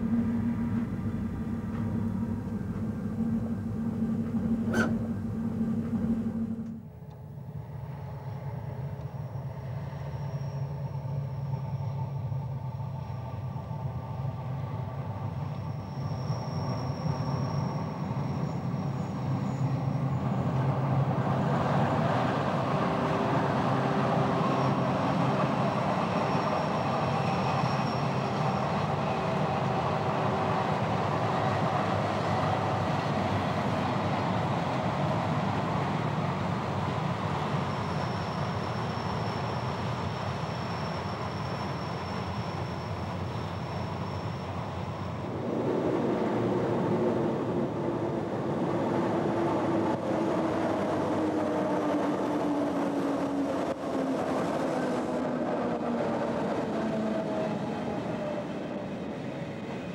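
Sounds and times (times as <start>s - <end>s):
faint steady whining tones: 0.0s - 21.2s
train running on track: 0.0s - 59.9s.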